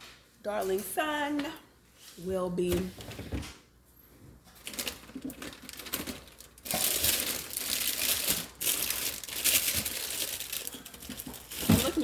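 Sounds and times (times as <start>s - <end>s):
plastic packaging crinkling: 4.5s - 12.0s.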